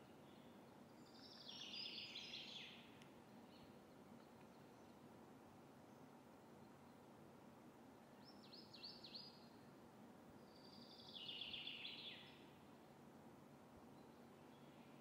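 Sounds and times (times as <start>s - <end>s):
faint bird song: 0.0s - 15.0s.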